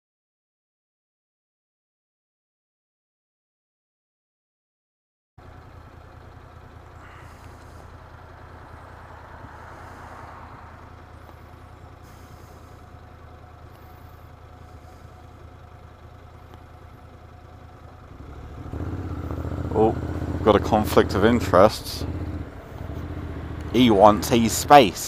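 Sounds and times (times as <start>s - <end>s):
motorcycle engine idling: 5.4s - 25.0s
faint traffic noise: 6.6s - 15.6s, 18.1s - 25.0s.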